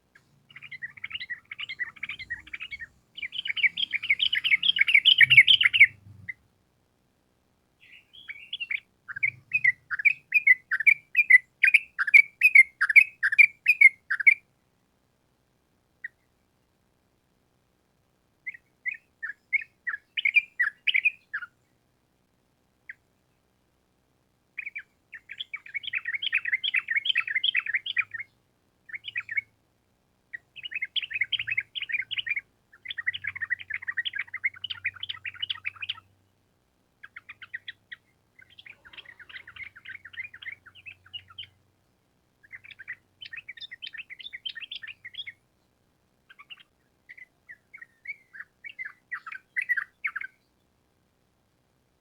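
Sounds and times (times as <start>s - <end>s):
faint low hum: 0.0s - 52.0s
bulbul chattering song: 0.2s - 6.4s, 7.8s - 14.4s, 24.6s - 28.3s, 28.9s - 29.5s, 30.3s - 36.2s, 37.0s - 41.6s, 42.4s - 45.4s, 46.3s - 50.3s.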